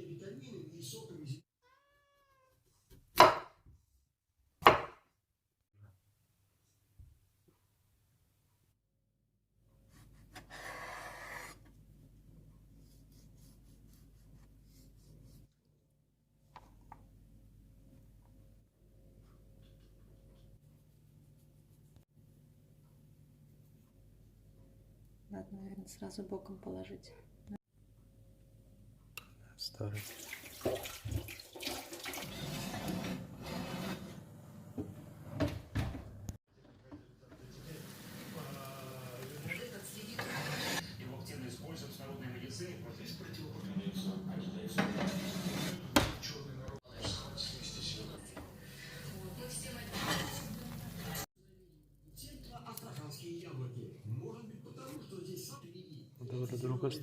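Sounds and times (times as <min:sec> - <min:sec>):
water running from tap: 0:30.0 - 0:32.6, 0:37.7 - 0:40.0.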